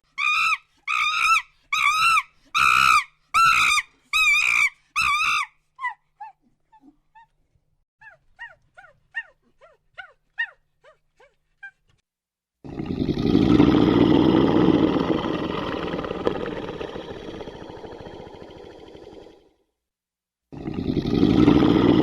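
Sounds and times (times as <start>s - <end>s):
dog whimpering: 8.0s - 12.0s.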